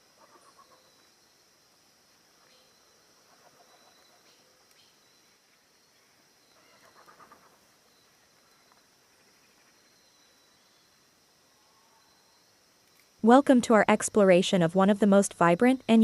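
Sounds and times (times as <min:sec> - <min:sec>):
faint bird calls: 0:00.0 - 0:01.2, 0:02.4 - 0:11.0
high insect drone: 0:00.0 - 0:13.6.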